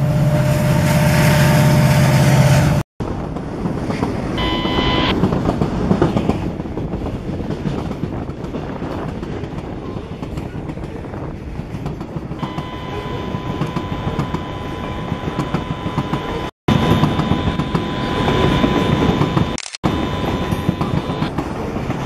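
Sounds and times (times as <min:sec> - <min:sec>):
freight train wheels clacking: 0:05.1 - 0:22.0
wheel flanges squealing: 0:12.4 - 0:21.3.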